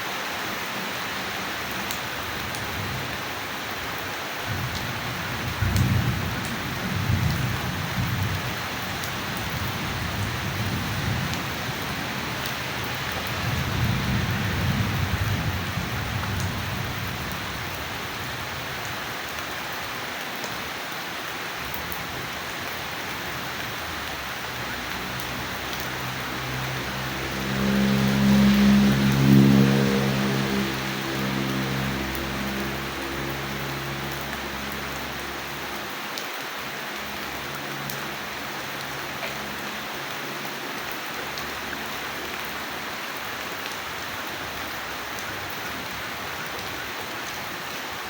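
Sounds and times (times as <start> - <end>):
steady rain: 0.0 - 48.0
thunder rumbling: 4.5 - 17.8.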